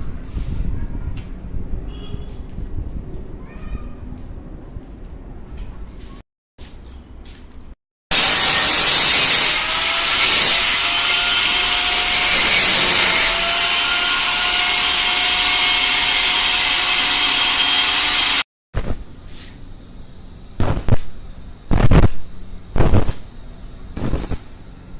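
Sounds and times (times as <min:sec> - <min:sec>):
angle grinder grinding steel: 0:08.1 - 0:18.4.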